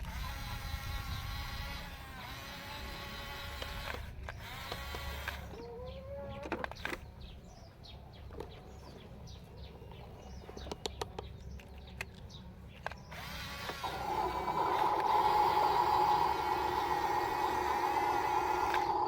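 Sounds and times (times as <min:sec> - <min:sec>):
toy electric motor whine: 0:00.0 - 0:05.8, 0:13.1 - 0:19.0
small birds chirping: 0:00.0 - 0:19.0.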